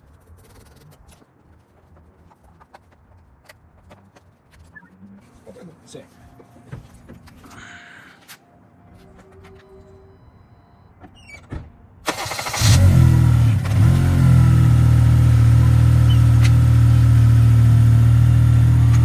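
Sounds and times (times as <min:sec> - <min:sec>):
car engine cranking and idling: 0:12.0 - 0:19.0.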